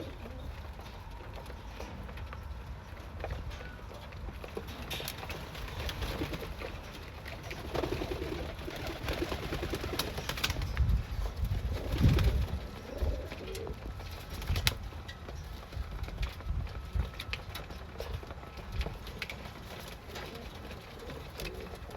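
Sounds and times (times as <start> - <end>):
pigeons cooing: 0.0 - 1.2, 4.8 - 14.8, 19.0 - 21.9.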